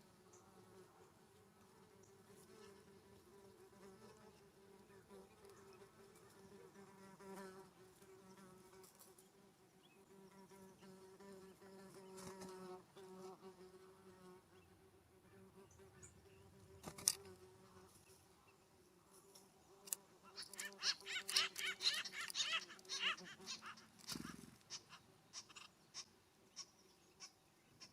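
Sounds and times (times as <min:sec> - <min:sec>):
flying insect buzzing: 0:00.1 - 0:18.2, 0:19.0 - 0:24.6
loud animal call: 0:20.4 - 0:26.1.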